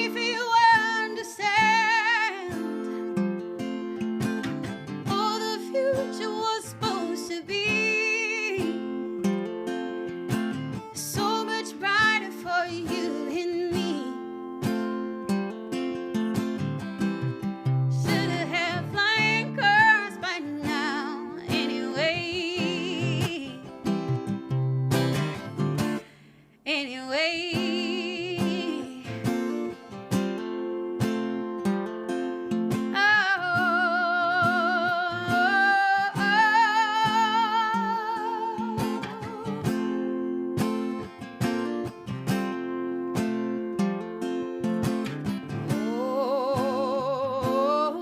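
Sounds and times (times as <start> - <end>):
woman singing with vibrato: 0.0 - 3.1, 5.0 - 9.3, 10.9 - 14.5, 17.9 - 24.1, 26.6 - 29.8, 32.9 - 40.0, 45.6 - 48.0
picked acoustic guitar: 0.0 - 48.0.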